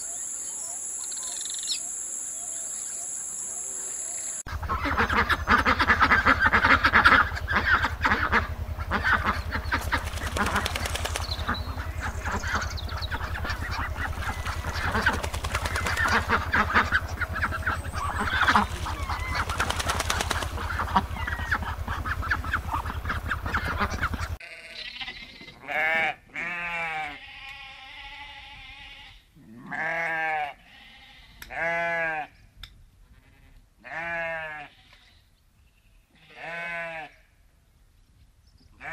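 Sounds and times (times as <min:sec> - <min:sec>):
low steady hum: 0:00.0 - 0:24.4
flock of waterfowl honking: 0:03.5 - 0:26.1.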